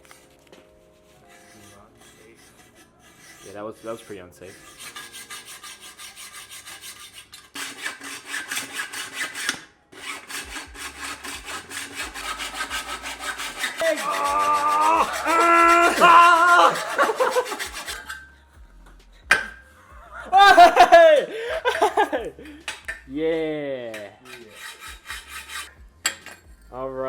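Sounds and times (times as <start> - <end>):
hacksaw cutting metal pipe: 1.3 - 19.6, 20.4 - 26.7
pitched squealing tone: 13.6 - 18.3.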